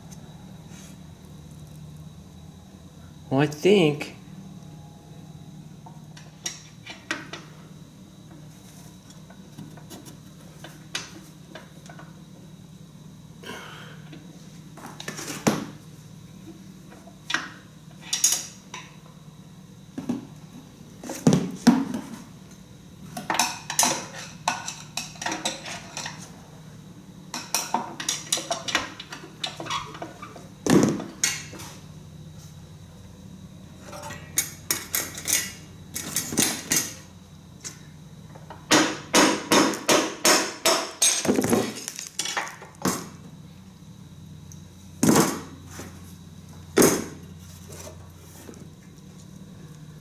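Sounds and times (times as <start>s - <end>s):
metal engine parts clanking: 33.8s - 37.0s.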